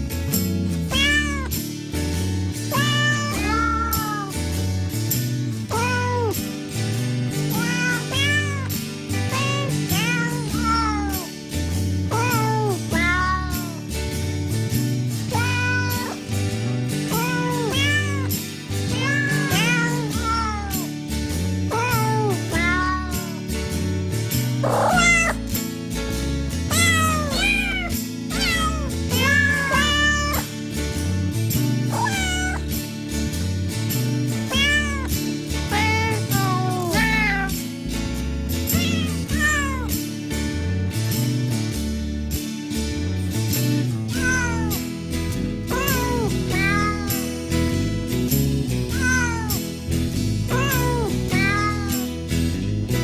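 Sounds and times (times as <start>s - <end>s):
music with bass and beat: 0.0s - 53.0s
cat meows: 0.9s - 1.6s, 2.7s - 4.4s, 5.7s - 6.4s, 7.5s - 8.7s, 9.3s - 11.3s, 12.1s - 13.8s, 15.3s - 16.2s, 17.1s - 18.3s, 18.9s - 20.9s, 21.7s - 23.4s, 24.6s - 25.4s, 26.7s - 30.5s, 31.9s - 32.7s, 34.5s - 35.1s, 35.7s - 37.6s, 38.7s - 39.9s, 44.1s - 44.8s, 45.7s - 47.2s, 48.9s - 49.6s, 50.5s - 52.1s.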